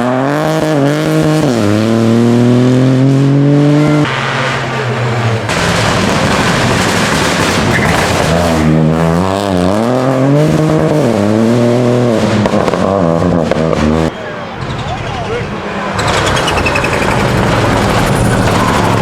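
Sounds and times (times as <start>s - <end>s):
rally car engine revving: 0.0s - 19.0s
rushing noise: 14.1s - 19.0s.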